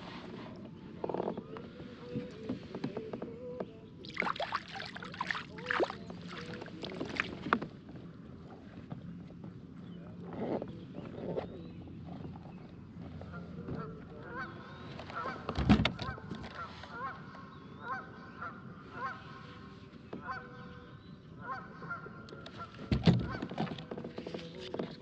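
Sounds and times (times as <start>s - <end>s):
geese honking: 13.3s - 19.5s, 21.4s - 23.5s
dull thumps against kayak: 22.8s - 24.1s.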